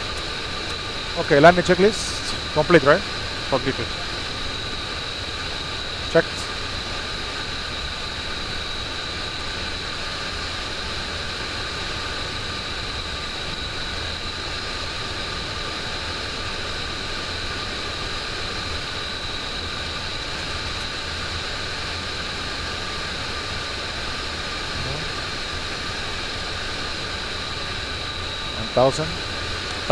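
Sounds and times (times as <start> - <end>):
airflow and engine rush: 0.0 - 11.0, 28.3 - 29.9
thin high whine: 1.0 - 10.6.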